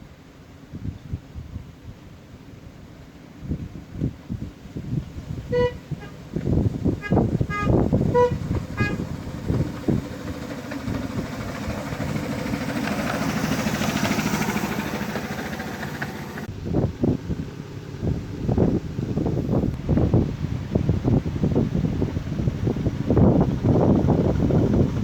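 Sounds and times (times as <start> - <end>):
wind buffeting microphone: 0.7 - 25.0
locomotive engine running: 4.9 - 25.0
short horn toots: 5.5 - 6.3, 6.9 - 9.1.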